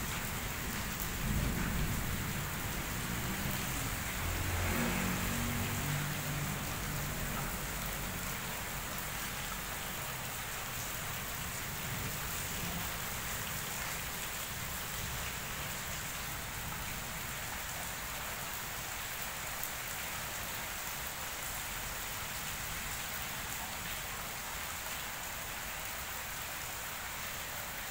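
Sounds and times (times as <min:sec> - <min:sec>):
rain on wet paving: 0:00.0 - 0:27.9
thunder rumble: 0:00.3 - 0:06.6.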